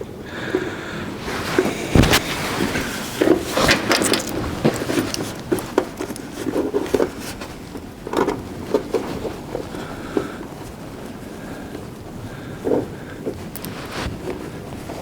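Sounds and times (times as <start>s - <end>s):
wires rubbing and scraping: 1.2s - 7.6s, 13.3s - 15.0s.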